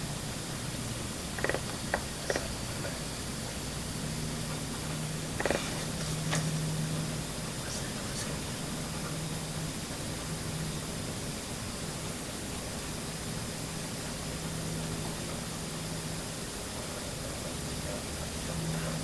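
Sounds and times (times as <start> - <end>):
static hiss: 0.0 - 19.0.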